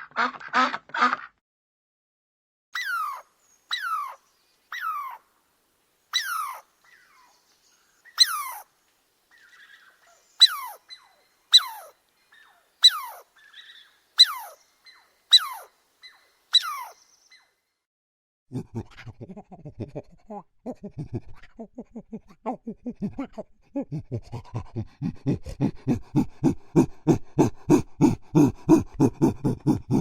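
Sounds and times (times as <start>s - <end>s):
animal crying with falling pitch: 2.8s - 4.2s, 6.2s - 6.6s, 15.3s - 15.7s, 16.6s - 17.0s, 18.6s - 30.0s.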